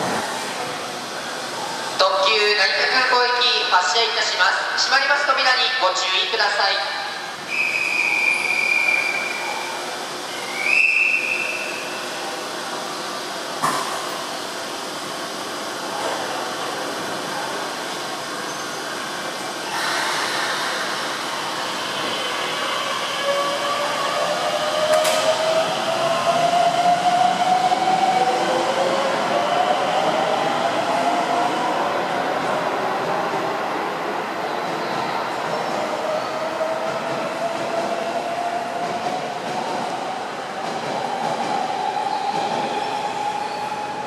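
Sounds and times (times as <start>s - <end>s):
high whistle blasts: 7.5s - 9.5s, 10.3s - 11.8s.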